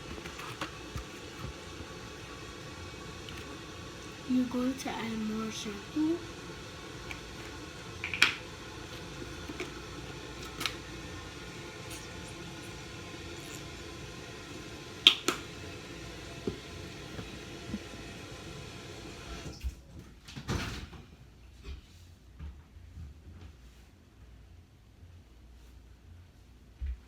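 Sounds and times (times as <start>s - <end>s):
steady hiss: 0.0s - 19.6s.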